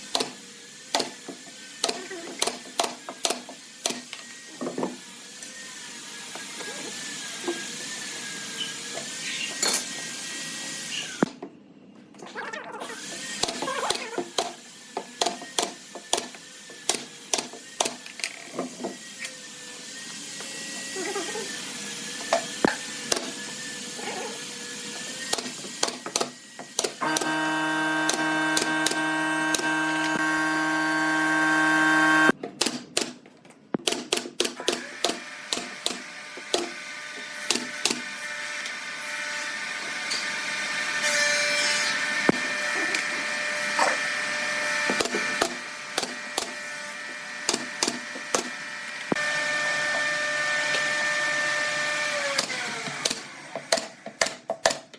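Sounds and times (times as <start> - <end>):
electric power tool running: 27.0 - 32.4.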